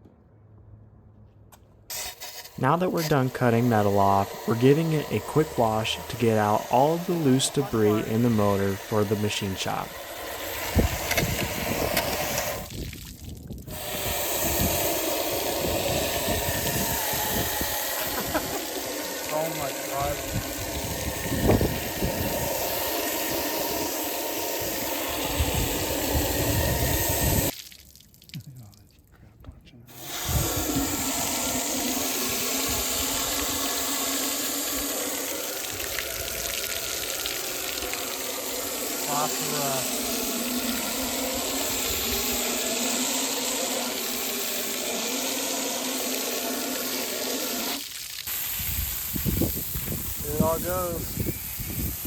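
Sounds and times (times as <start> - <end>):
water spray hissing on metal: 1.9 - 27.8, 29.9 - 52.0
steady hum: 29.4 - 47.8.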